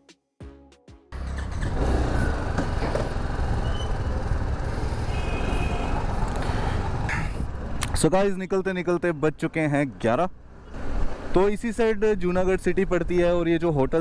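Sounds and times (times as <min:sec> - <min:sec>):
background music: 0:00.0 - 0:01.2
motorcycle engine running: 0:01.2 - 0:07.1.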